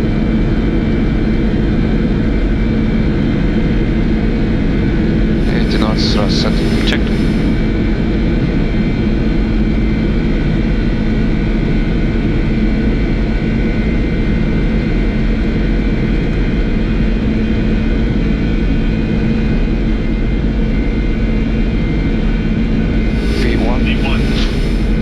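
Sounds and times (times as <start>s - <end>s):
jet engines drone at takeoff: 5.3s - 8.4s, 23.0s - 25.0s.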